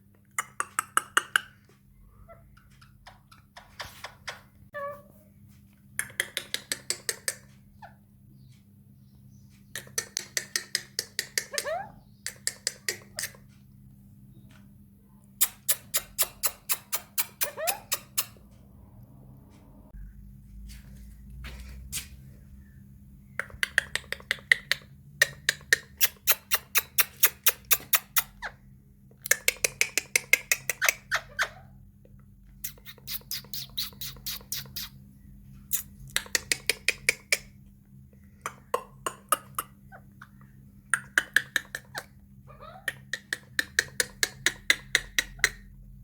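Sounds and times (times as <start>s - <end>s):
parrot squawking: 11.4s - 12.1s, 15.4s - 18.4s, 30.6s - 31.8s, 32.6s - 35.0s, 41.2s - 44.6s.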